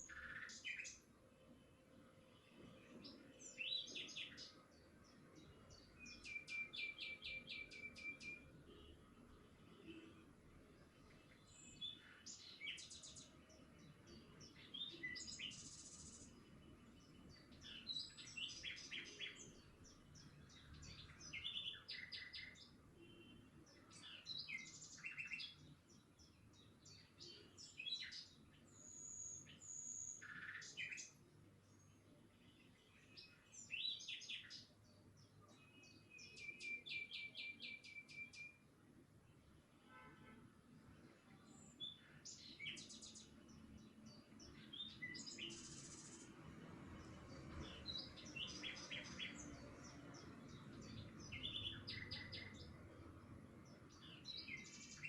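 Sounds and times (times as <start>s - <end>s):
birds chirping and singing: 2.4s - 8.4s, 11.3s - 22.7s, 41.4s - 46.3s, 47.0s - 53.0s, 53.6s - 55.0s.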